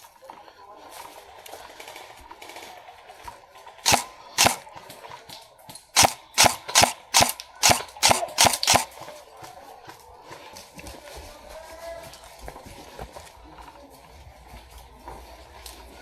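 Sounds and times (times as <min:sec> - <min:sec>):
airsoft gun shots: 0:03.9 - 0:04.7, 0:06.0 - 0:09.0.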